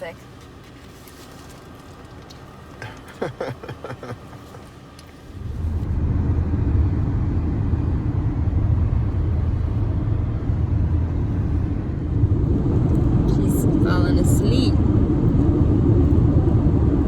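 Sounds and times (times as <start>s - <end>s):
car cabin road rumble: 0.0s - 17.0s.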